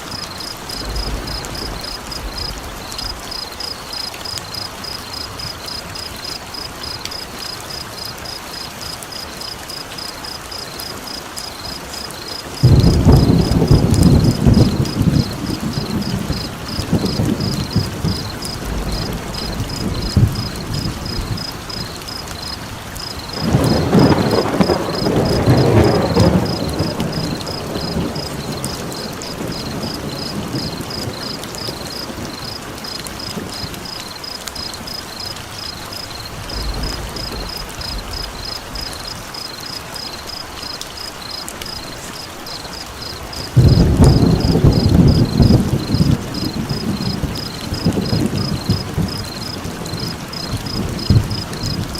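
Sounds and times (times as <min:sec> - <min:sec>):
steady rain: 0:00.0 - 0:51.9
thunder rolling: 0:00.6 - 0:03.4, 0:12.6 - 0:34.0, 0:36.1 - 0:39.2, 0:41.7 - 0:51.9.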